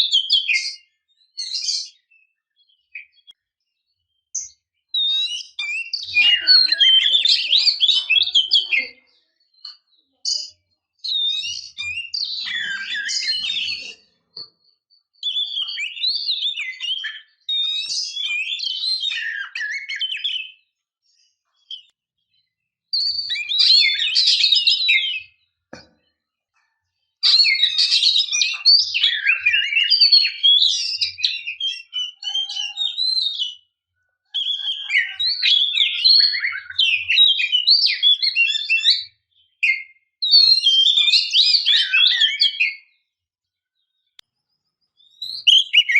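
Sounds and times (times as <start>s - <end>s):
bird singing whistled phrases: 0.0s - 3.4s, 4.1s - 9.7s, 10.3s - 14.1s, 15.2s - 20.7s, 23.0s - 25.4s, 27.2s - 33.7s, 34.4s - 43.0s, 45.0s - 45.9s.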